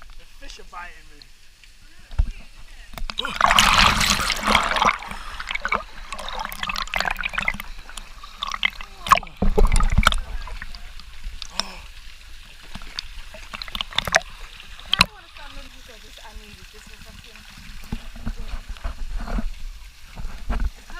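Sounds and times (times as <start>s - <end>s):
water trickling and gurgling: 0.0s - 20.9s
sharp splashes in water: 3.1s - 11.5s
heavy low splash: 3.2s - 7.6s.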